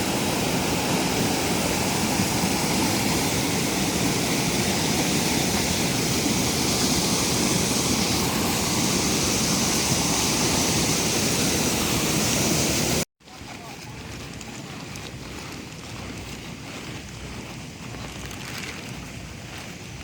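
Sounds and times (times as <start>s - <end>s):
heavy rain falling: 0.0s - 13.0s
waterfall roaring: 0.0s - 13.0s.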